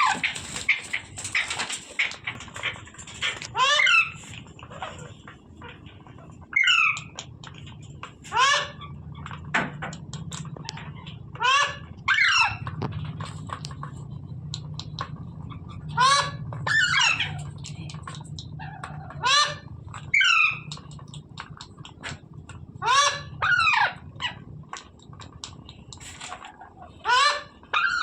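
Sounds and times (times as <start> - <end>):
parrot squawking: 0.0 - 7.2, 8.2 - 9.4, 10.1 - 12.7, 15.4 - 22.0, 22.8 - 24.4, 26.3 - 28.0
low hum: 0.0 - 28.0.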